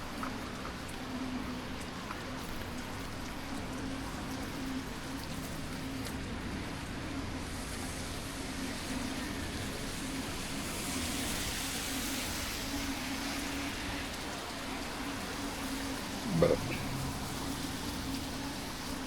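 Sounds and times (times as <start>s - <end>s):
constant low hum: 16.2s - 18.0s.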